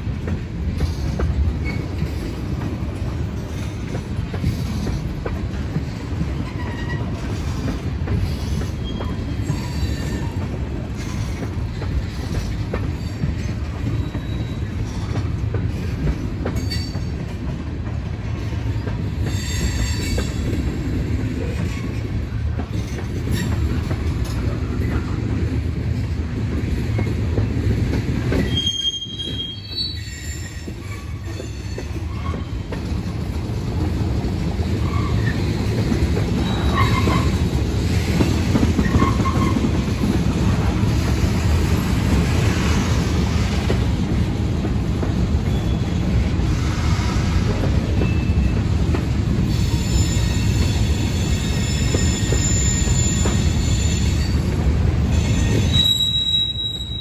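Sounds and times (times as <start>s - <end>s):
train cars rumbling on rails: 0.0s - 57.0s
wheel squeals: 13.9s - 15.1s, 28.4s - 32.6s, 36.4s - 37.4s, 49.6s - 54.4s, 55.2s - 57.0s.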